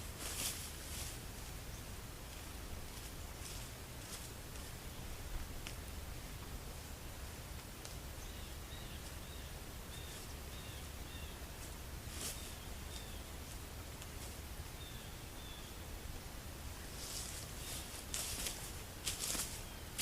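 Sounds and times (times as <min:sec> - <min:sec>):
rustling: 0:00.0 - 0:01.6, 0:11.6 - 0:14.4, 0:16.8 - 0:20.0.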